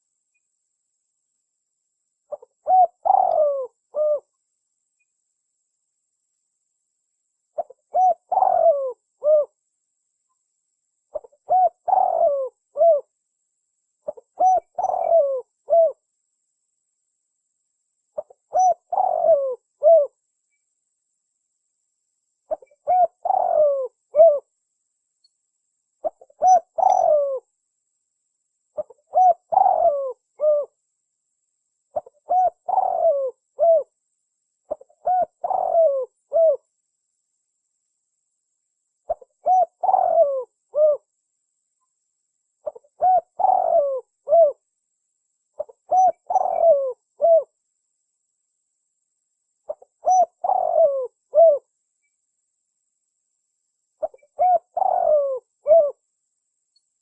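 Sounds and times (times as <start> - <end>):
dove cooing: 2.3 - 4.3, 7.6 - 9.6, 11.1 - 13.1, 14.0 - 16.0, 18.2 - 20.1, 22.5 - 24.5, 26.0 - 27.5, 28.8 - 30.8, 31.9 - 33.9, 34.7 - 36.6, 39.1 - 41.1, 42.6 - 44.6, 45.6 - 47.6, 49.7 - 51.7, 54.0 - 56.0.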